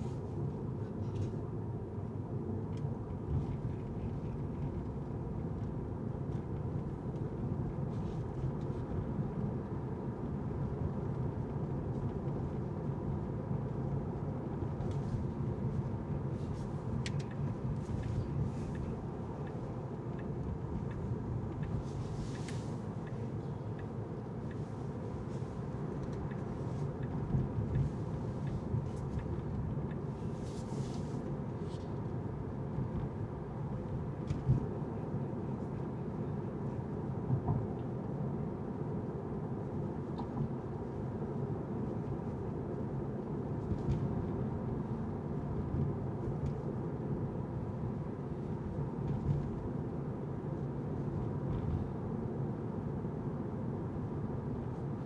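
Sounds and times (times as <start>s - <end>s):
car road and engine rumble: 2.9s - 35.4s.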